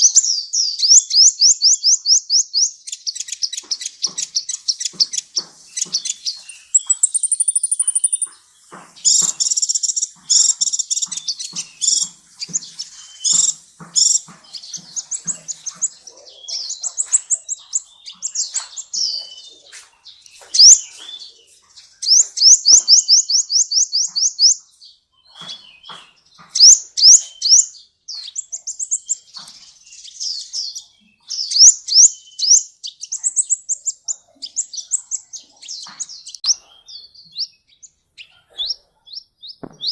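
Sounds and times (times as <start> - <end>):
high-pitched bird trills: 0.0 - 19.7, 20.4 - 21.4, 22.0 - 24.6, 26.5 - 29.3.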